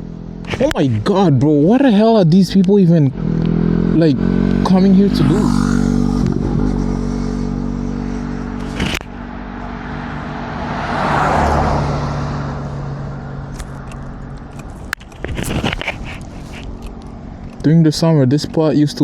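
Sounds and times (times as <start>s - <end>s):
car passing by: 8.6s - 14.2s.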